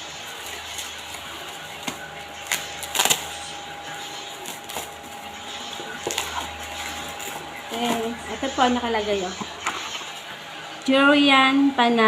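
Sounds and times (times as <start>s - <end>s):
packaging rustle: 0.0s - 8.7s
packaging clicks: 0.2s - 3.5s, 4.2s - 8.2s.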